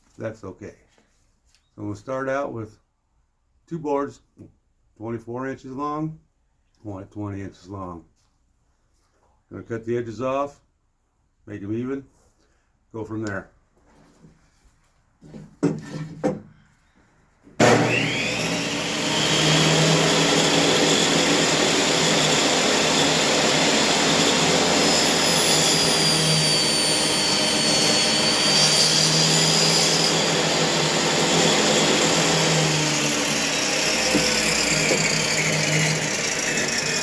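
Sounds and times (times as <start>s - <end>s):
knocks: 15.6s - 16.5s
woodworking power tool running: 17.6s - 37.0s.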